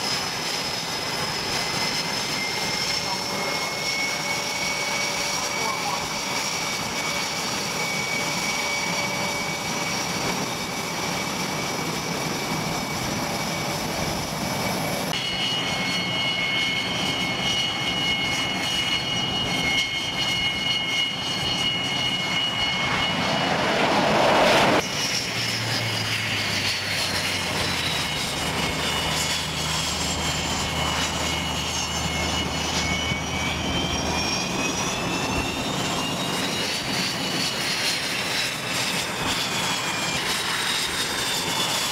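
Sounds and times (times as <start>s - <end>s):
aircraft passing: 0.0s - 41.9s
jet engines whining: 0.0s - 41.9s
loud rushing swell: 22.5s - 24.9s.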